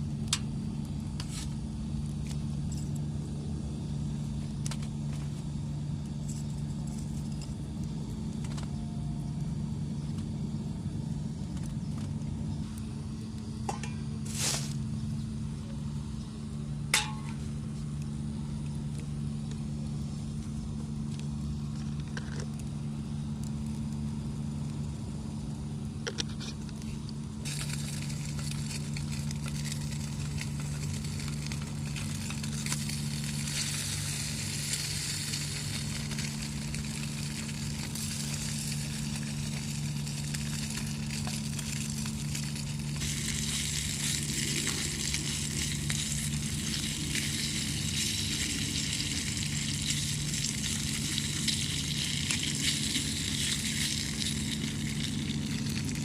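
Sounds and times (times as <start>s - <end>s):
steady low hum: 0.0s - 56.0s
food sizzling in frying pan: 27.4s - 56.0s.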